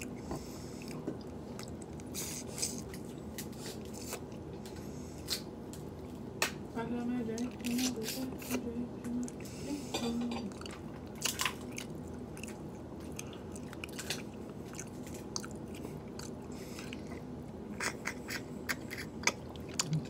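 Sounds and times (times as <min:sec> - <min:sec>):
person chewing and biting: 0:00.0 - 0:04.6, 0:10.5 - 0:20.0
steady low hum: 0:00.0 - 0:20.0.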